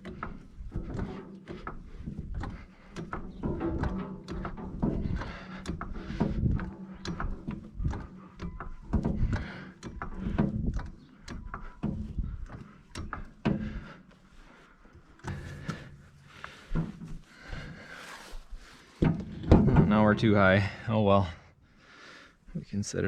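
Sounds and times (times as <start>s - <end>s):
jack clanking: 0.0s - 20.8s.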